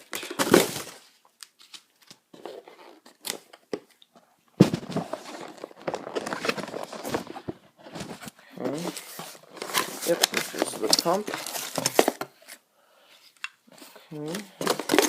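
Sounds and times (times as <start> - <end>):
packaging clicks and rustles: 4.9 - 8.4, 9.0 - 12.6, 14.2 - 15.0
packaging tearing and crinkling: 5.1 - 7.3, 14.6 - 15.0.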